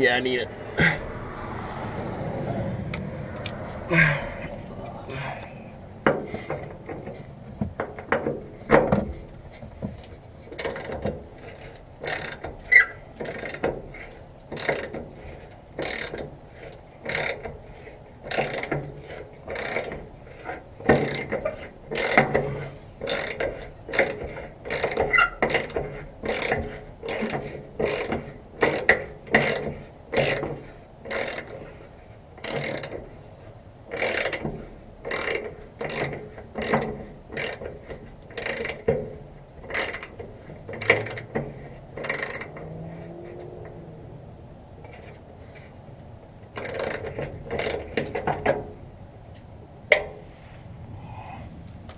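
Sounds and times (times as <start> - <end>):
socket ratchet ratcheting: 10.6 - 13.8, 14.5 - 15.1, 15.8 - 16.3, 17.0 - 17.5, 18.3 - 18.8, 19.5 - 20.0, 20.8 - 22.4, 23.0 - 30.5, 31.1 - 31.6, 32.4 - 33.0, 33.9 - 38.9, 39.6 - 41.4, 42.0 - 42.7, 46.5 - 48.3.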